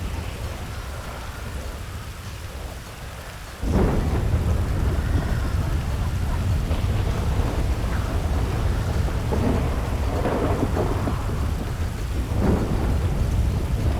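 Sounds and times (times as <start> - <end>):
hard rain pouring: 0.0 - 13.9
wind: 0.0 - 13.9
deep low rumble: 3.6 - 13.9.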